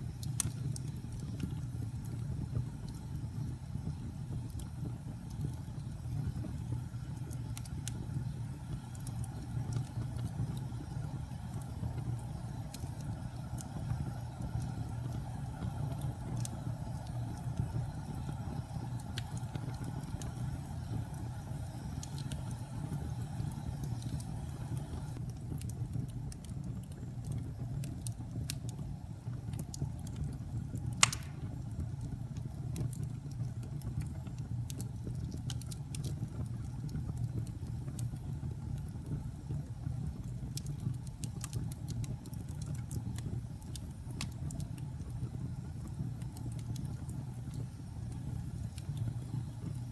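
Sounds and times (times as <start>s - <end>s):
fire crackles and pops: 0.0s - 49.9s
low rumble of flames: 0.0s - 49.9s.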